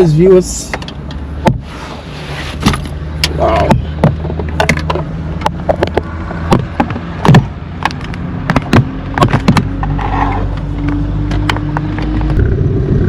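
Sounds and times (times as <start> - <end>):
car engine running: 1.4 - 13.0
sharp knocks and rattles: 3.7 - 10.0
steady engine tone: 9.7 - 13.0.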